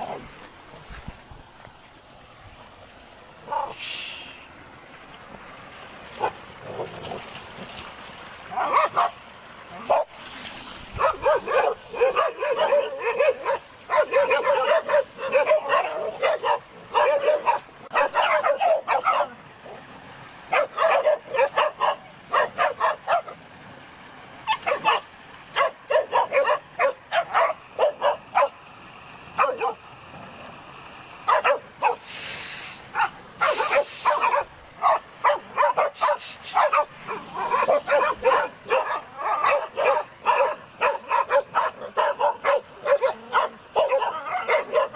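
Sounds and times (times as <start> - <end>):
dogs barking: 3.4 - 3.8, 6.2 - 7.1, 8.5 - 9.2, 9.8 - 10.1, 11.0 - 19.9, 20.5 - 23.4, 24.4 - 28.6, 29.4 - 29.8, 31.2 - 32.1, 32.9 - 44.9
short hissing bursts: 3.7 - 4.5, 32.0 - 34.2, 36.0 - 36.7.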